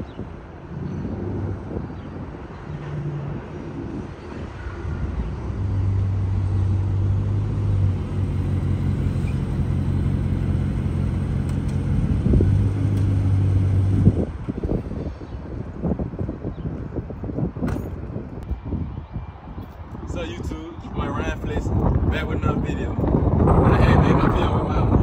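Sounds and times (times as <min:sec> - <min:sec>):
wind buffeting the microphone: 0:00.0 - 0:25.0
car engine humming: 0:04.8 - 0:14.4.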